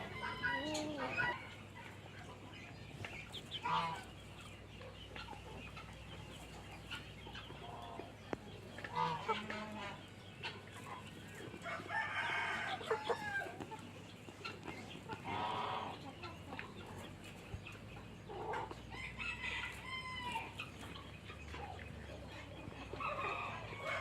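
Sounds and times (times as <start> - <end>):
chickens clucking: 0.0 - 24.0
rooster crowing: 11.7 - 13.6.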